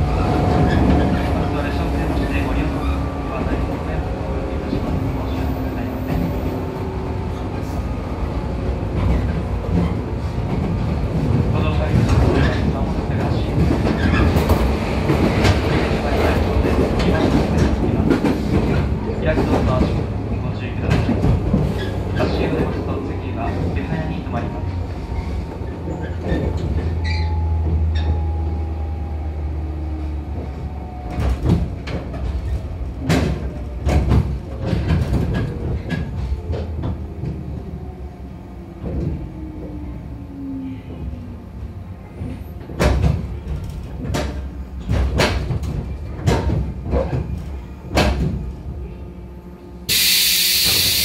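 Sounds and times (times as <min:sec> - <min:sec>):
train running rumble: 0:00.0 - 0:51.0
loud hiss of air: 0:49.9 - 0:51.0.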